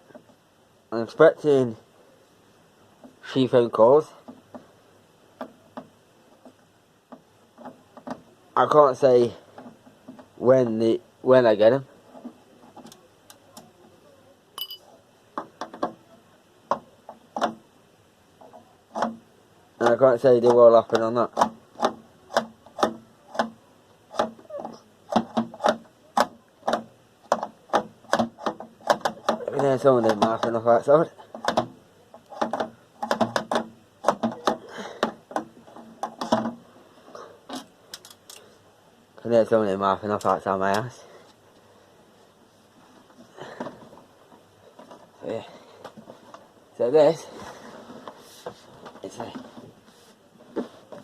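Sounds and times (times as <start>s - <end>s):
short metallic ring: 14.6s - 14.9s
computer tower clicks and knocks: 19.8s - 24.4s, 25.1s - 30.7s, 31.4s - 36.6s.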